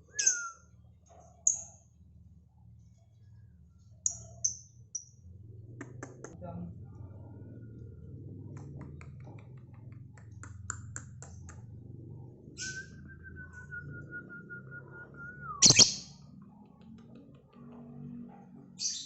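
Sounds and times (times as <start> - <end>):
bird clicks and chirps: 15.6 - 17.6.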